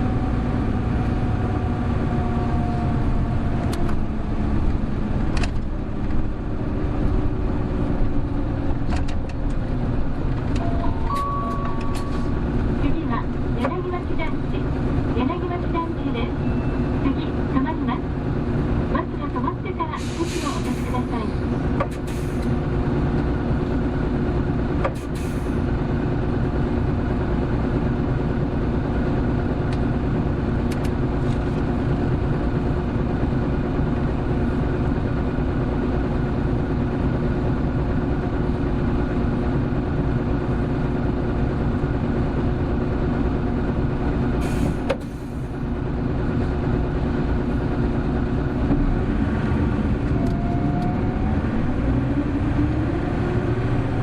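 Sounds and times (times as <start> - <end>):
bus diesel engine at high revs: 0.0 - 54.0.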